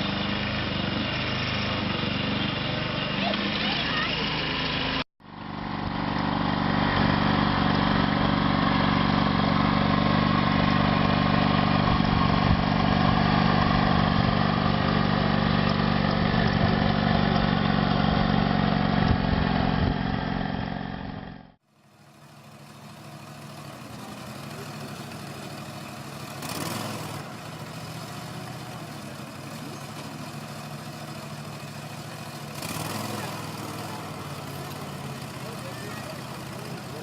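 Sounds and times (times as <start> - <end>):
small engine running steadily: 0.0 - 37.0.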